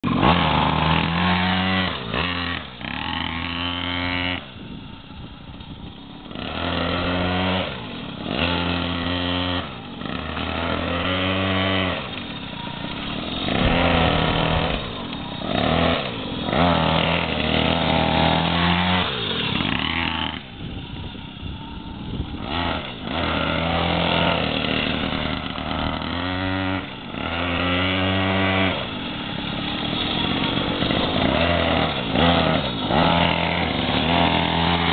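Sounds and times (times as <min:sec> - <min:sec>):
minibike engine revving: 0:00.0 - 0:34.9.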